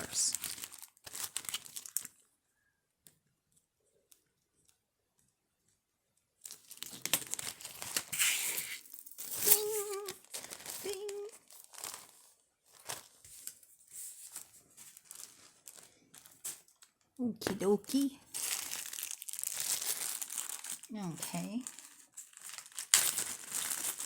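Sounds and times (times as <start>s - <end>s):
plastic packaging crinkling: 0.0s - 2.3s, 6.4s - 24.0s
person humming: 9.4s - 10.2s, 10.8s - 11.4s.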